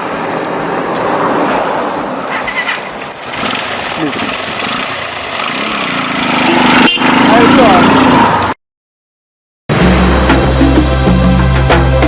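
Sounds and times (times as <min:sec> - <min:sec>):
engine running: 0:02.7 - 0:08.5.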